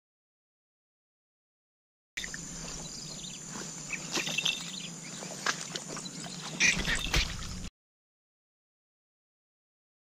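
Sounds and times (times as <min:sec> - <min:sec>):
footsteps crunching tall grass: 0:02.2 - 0:07.7
short bird calls: 0:02.2 - 0:07.7.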